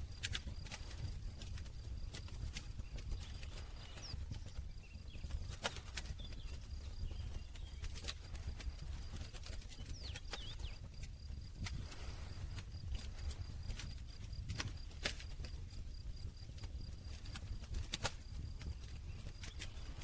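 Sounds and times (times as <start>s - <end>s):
campfire crackling and popping: 0.0s - 20.0s
low rumble of flames: 0.0s - 20.0s.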